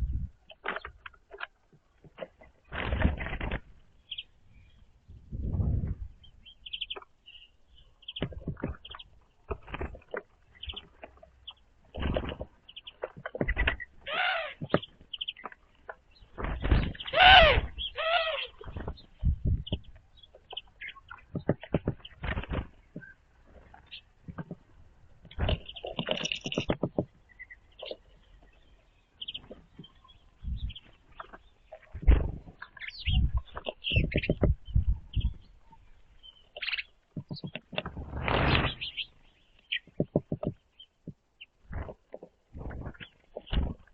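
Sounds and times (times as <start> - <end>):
small birds chirping: 0.0 - 43.9
dull knocks and thumps: 8.2 - 8.9, 21.2 - 23.6, 24.2 - 27.2, 33.3 - 35.4, 37.1 - 38.1, 39.8 - 43.9
harsh bird call: 16.9 - 18.6.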